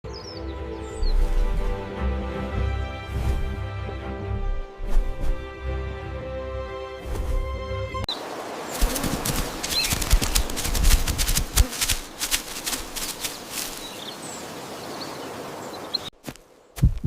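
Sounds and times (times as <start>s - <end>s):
background music: 0.1s - 8.1s.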